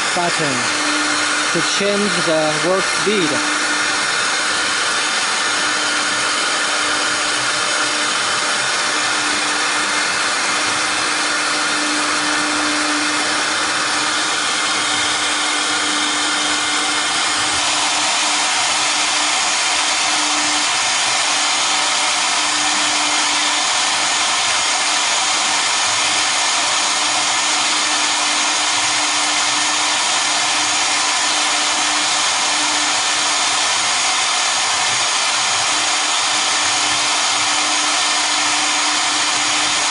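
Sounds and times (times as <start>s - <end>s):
router spindles whirring: 0.0s - 39.9s.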